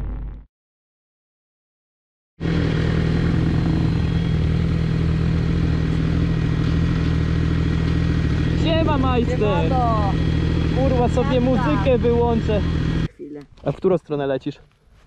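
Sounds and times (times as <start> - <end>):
motorcycle engine idling: 2.4 - 13.1.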